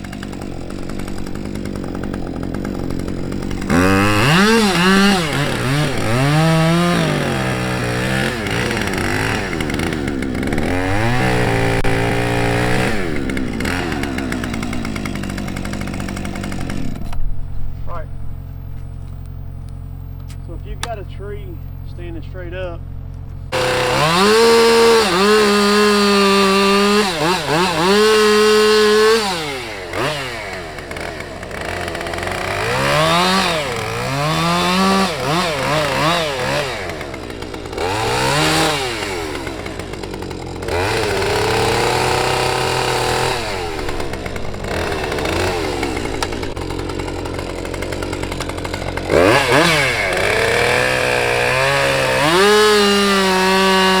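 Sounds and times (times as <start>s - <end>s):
chainsaw revving: 0.0s - 18.0s, 23.5s - 54.0s.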